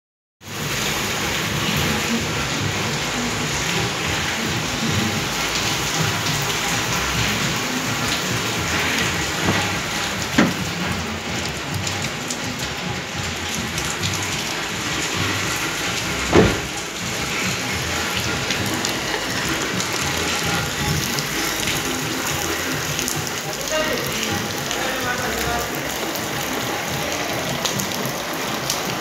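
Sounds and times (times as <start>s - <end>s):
steady rain: 0.4s - 29.0s
dull thumps: 9.4s - 11.0s, 16.3s - 16.7s.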